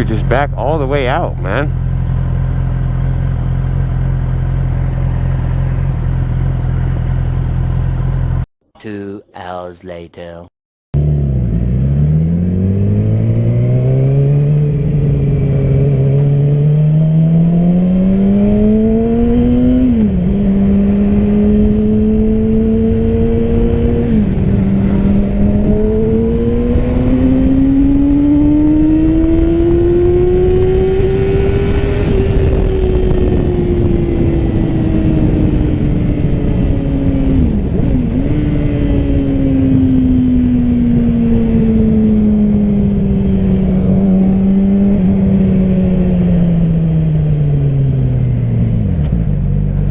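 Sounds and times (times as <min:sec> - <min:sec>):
motorcycle engine accelerating: 0:00.0 - 0:08.5, 0:11.0 - 0:49.9
wind rush: 0:21.6 - 0:48.9.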